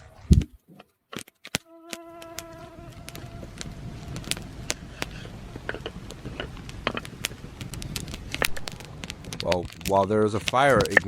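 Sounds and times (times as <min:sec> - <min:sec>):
campfire crackling and popping: 0:00.0 - 0:11.0
flying insect buzzing: 0:01.6 - 0:06.6.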